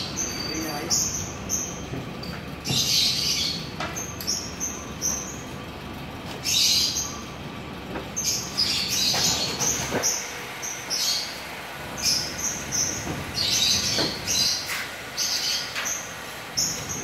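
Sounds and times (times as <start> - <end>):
louder noisy bird calls: 0.0 - 2.0, 2.6 - 17.0
small bird chirping: 12.0 - 17.0.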